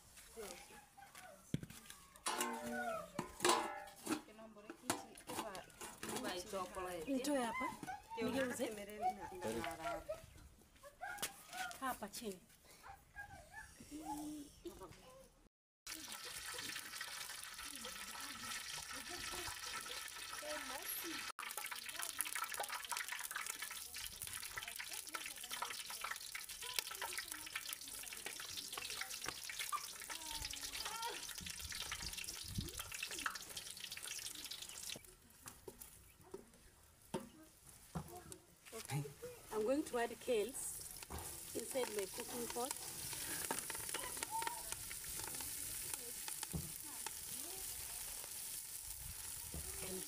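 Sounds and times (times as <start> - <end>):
food sizzling in a pot: 15.9 - 35.9, 39.5 - 50.0.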